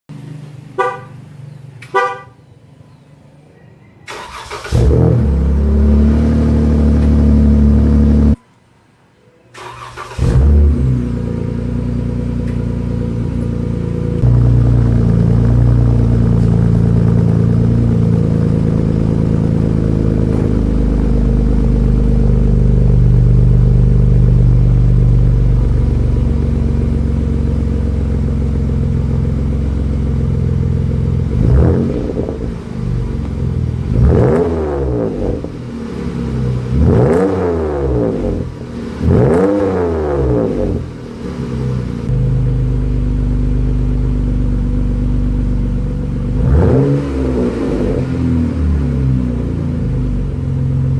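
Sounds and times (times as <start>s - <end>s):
car engine idling and revving: 0.1s - 2.3s, 4.3s - 8.4s, 9.6s - 50.9s.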